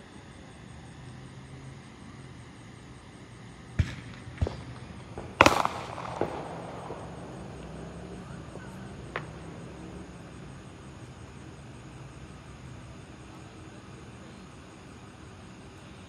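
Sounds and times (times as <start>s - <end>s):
fireworks pops: 3.7s - 9.5s
fireworks bangs: 3.7s - 10.5s.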